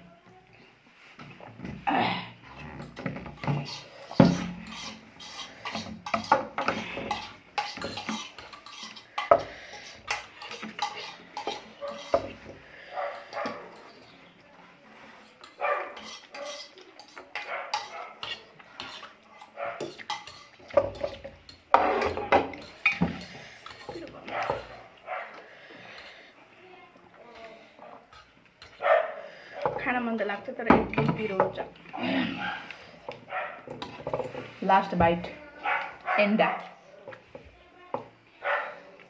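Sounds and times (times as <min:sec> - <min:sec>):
cutlery clinking on plate: 0:02.8 - 0:12.4, 0:15.4 - 0:24.7.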